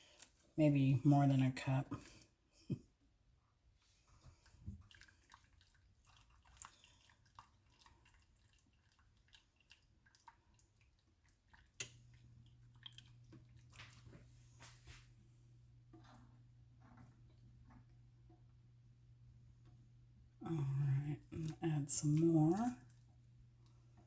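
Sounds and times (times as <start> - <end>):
cheese stirred into sauce: 3.7 - 18.5
low steady hum: 11.4 - 24.0.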